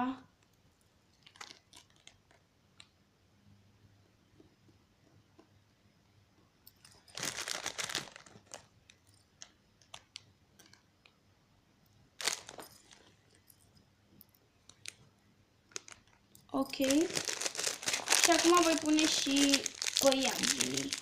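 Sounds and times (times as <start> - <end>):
plastic packaging crinkling: 1.2 - 2.3, 6.8 - 8.7, 12.2 - 13.1, 15.7 - 21.0.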